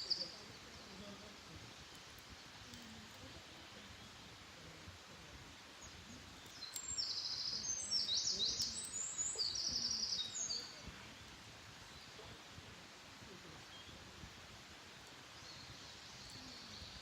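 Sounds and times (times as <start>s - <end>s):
faint outdoor background noise: 0.0s - 17.0s
songbird trilling: 6.5s - 10.8s.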